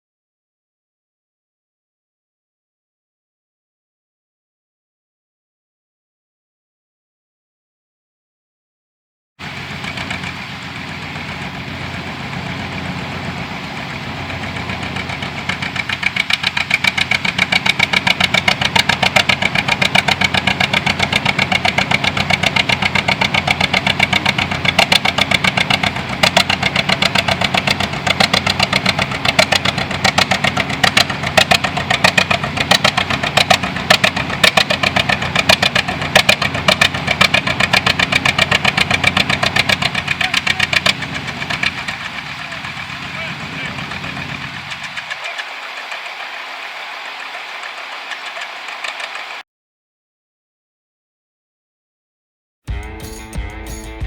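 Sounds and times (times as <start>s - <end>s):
tractor engine running: 9.4s - 49.4s, 52.7s - 54.0s.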